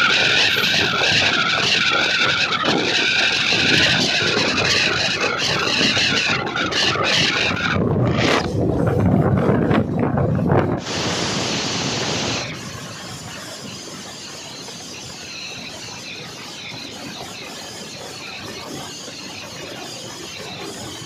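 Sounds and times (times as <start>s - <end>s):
wheels squealing on rail: 0.0s - 8.6s, 10.8s - 21.0s
train rolling on rails: 0.0s - 21.0s
loud hiss: 10.8s - 21.0s.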